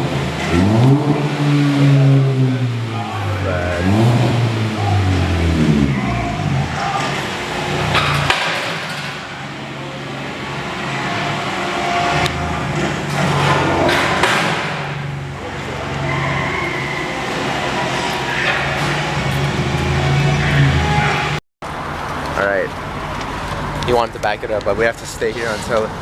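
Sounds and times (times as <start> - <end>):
car engine idling: 0.0 - 26.0
sharp metallic knocks: 7.8 - 9.4, 12.3 - 15.2.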